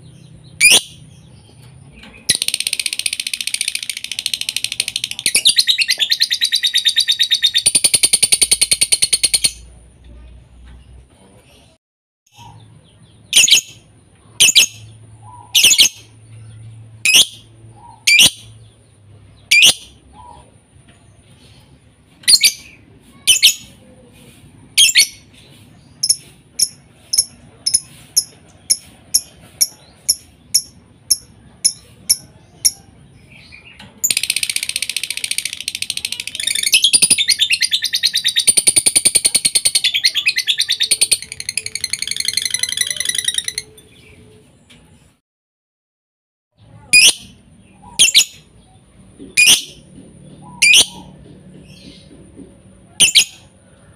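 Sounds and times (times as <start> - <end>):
lovebird calling: 47.0 - 48.4, 50.4 - 51.1.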